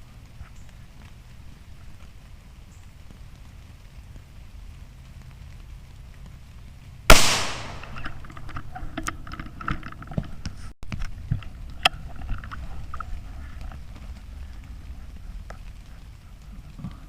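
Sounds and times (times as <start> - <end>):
steady rain: 0.0 - 17.0
rifle shot crack: 7.1 - 8.2
small clicks and knocks: 7.8 - 13.8.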